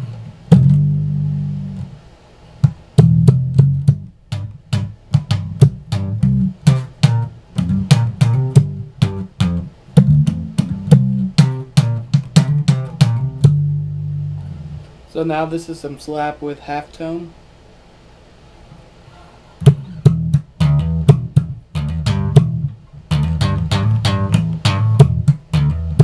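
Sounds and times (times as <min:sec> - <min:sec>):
slap bass guitar: 0:00.0 - 0:02.0, 0:02.6 - 0:14.9, 0:19.6 - 0:26.0.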